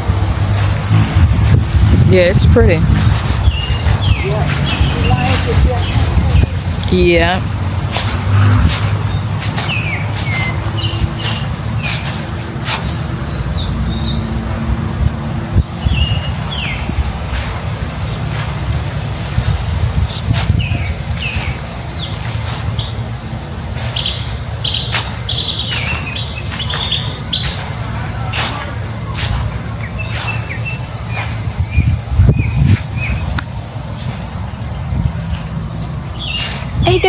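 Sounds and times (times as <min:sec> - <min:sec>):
songbirds chirping and trilling: 0:00.0 - 0:37.0
steady low rumble: 0:00.0 - 0:37.0.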